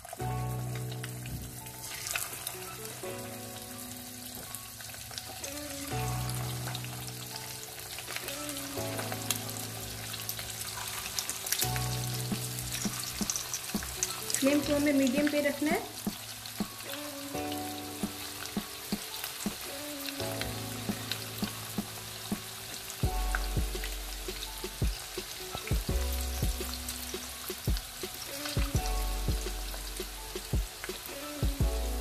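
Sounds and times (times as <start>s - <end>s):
chicken deep-frying in oil: 0.0s - 32.0s
background music with bass line: 11.6s - 32.0s.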